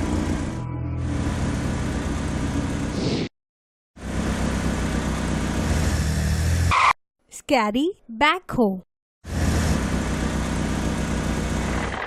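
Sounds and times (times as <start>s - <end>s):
vehicle engine running: 0.0s - 3.0s, 4.0s - 6.7s, 9.2s - 12.0s
second engine sound: 0.0s - 3.3s, 4.0s - 7.0s, 9.2s - 12.0s.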